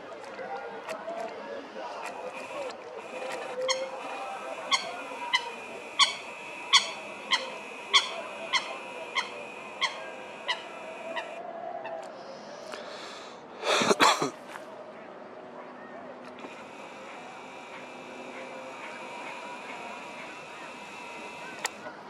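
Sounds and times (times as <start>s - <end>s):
bird honking calls: 2.2s - 11.4s, 16.4s - 21.8s.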